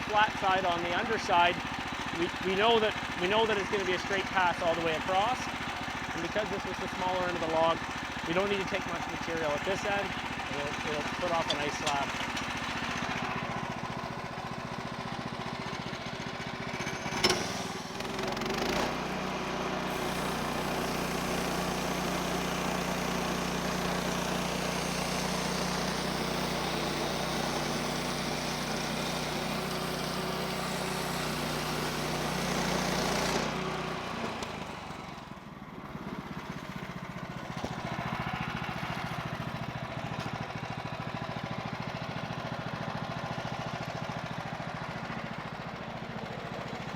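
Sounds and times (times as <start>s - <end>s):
band saw cutting log: 0.0s - 13.8s, 16.8s - 35.3s
sawmill engine running: 0.0s - 46.9s.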